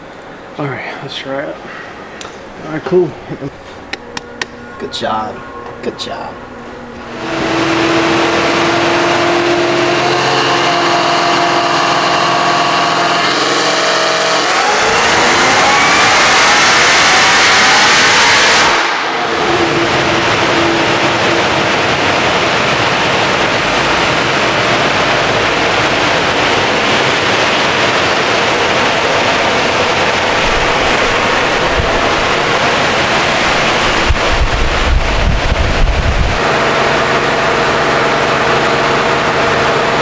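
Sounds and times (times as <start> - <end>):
car engine idling: 6.4 - 40.0
rush of air and machinery: 6.7 - 40.0
low rumble: 18.8 - 36.5.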